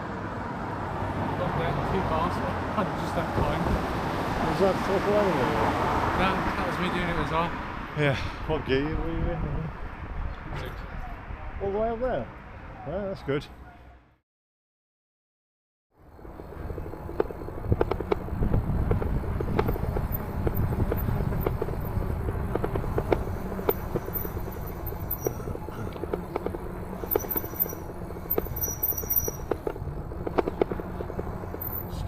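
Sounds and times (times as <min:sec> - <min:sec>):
e-bike riding rumble: 0:00.0 - 0:11.4, 0:16.0 - 0:32.0
bike rattling clicks and knocks: 0:16.7 - 0:32.0.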